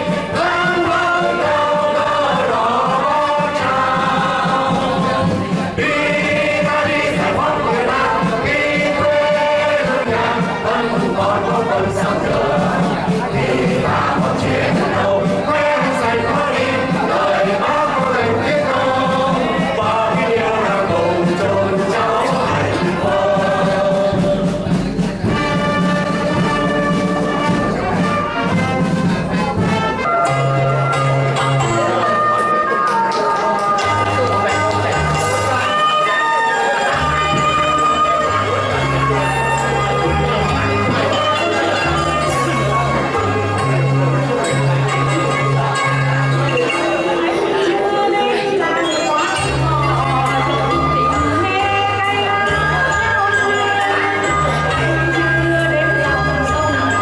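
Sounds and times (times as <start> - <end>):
choir singing: 0.0 - 24.8
group of voices singing: 0.0 - 28.2, 33.1 - 57.0
orchestral brass: 0.0 - 46.4.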